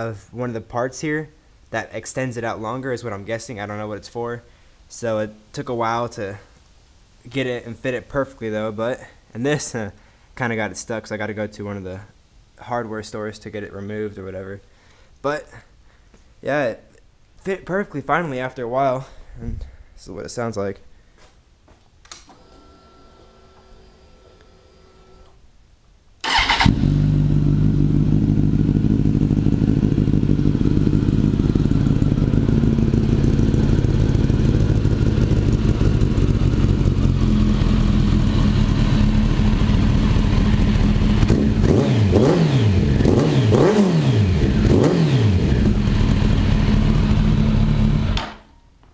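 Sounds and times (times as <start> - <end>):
motorcycle engine idling and revving: 26.3 - 48.2.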